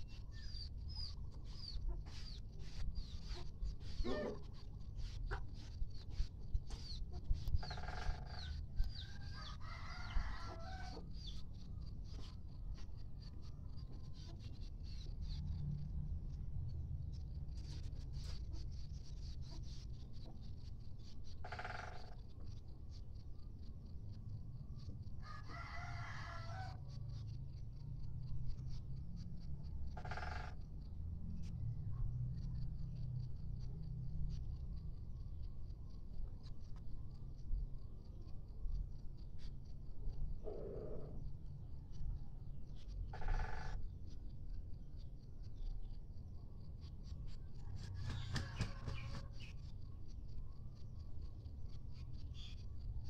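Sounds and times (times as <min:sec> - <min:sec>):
rooster crowing: 0:09.0 - 0:11.1, 0:25.2 - 0:26.9, 0:47.7 - 0:49.5
steady low hum: 0:26.8 - 0:53.0.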